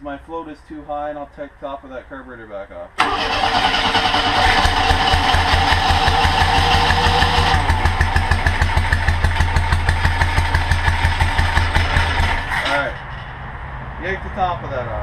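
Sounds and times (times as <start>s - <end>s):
engine running with low pulsing beat: 4.6s - 12.6s.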